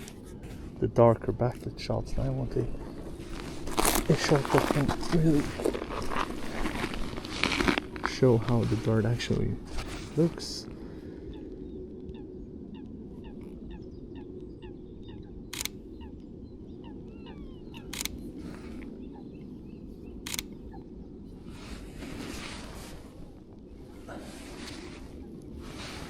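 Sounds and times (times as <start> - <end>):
low outdoor rumble: 0.0 - 26.0
bird calling repeated notes: 10.8 - 21.2
camera shutter clicks: 17.8 - 18.2.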